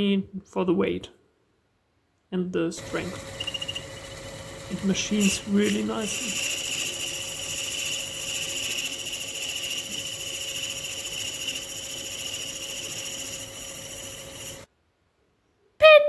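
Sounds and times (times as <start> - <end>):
lathe whining: 2.8 - 14.7.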